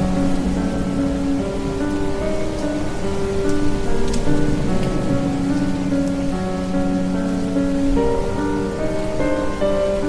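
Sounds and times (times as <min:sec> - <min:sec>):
heavy rain: 0:00.0 - 0:10.0
sharp raindrop hits: 0:00.0 - 0:10.0
slow background music: 0:00.0 - 0:10.0.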